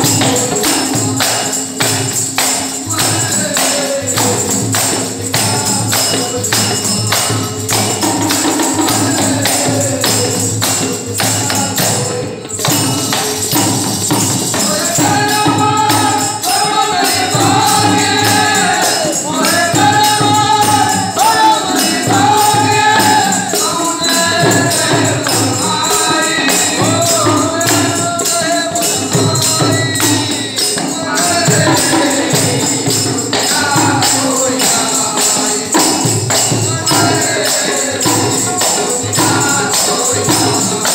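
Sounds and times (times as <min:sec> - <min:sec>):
jingling hand percussion: 0:00.0 - 0:40.9
voices singing: 0:00.0 - 0:40.9.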